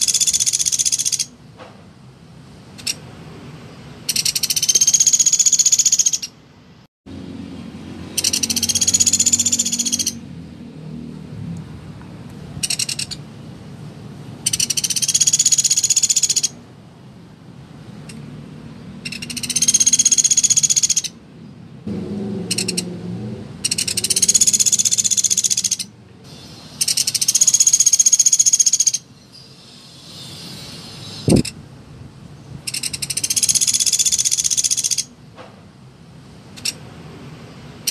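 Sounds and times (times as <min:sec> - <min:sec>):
woodpecker calling in rapid trills: 0:00.0 - 0:01.3, 0:04.1 - 0:06.4, 0:08.1 - 0:10.2, 0:12.6 - 0:13.2, 0:14.4 - 0:16.6, 0:19.0 - 0:21.2, 0:22.5 - 0:22.9, 0:23.6 - 0:31.6, 0:32.7 - 0:35.1.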